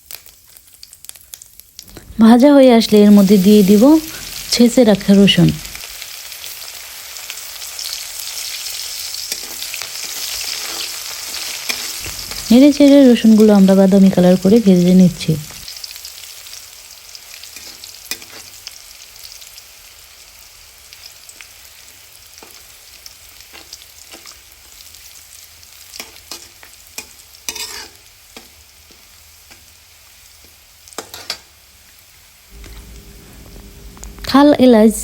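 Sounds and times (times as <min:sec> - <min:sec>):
garlic sizzling in hot oil: 0:00.0 - 0:35.0
spatula scraping pan: 0:09.1 - 0:12.5, 0:26.0 - 0:28.5, 0:31.0 - 0:31.4.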